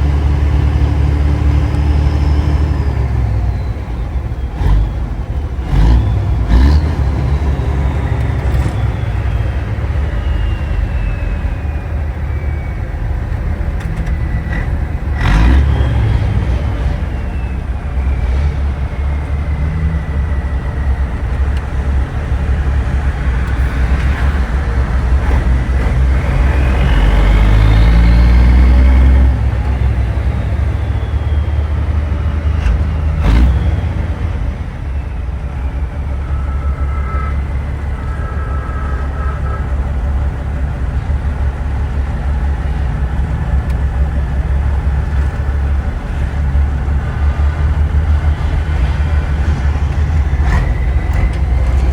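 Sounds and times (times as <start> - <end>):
diesel truck engine rumbling: 0.0 - 51.9
road noise: 0.0 - 51.9
high whine: 33.9 - 51.9.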